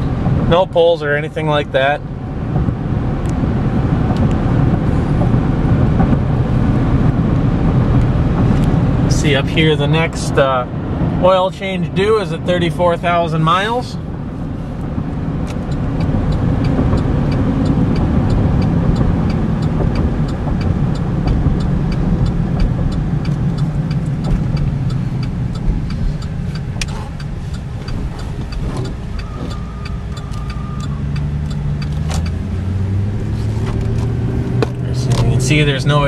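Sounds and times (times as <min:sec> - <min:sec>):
engine and road noise: 0:00.0 - 0:36.0
faint even ticking: 0:15.4 - 0:33.2.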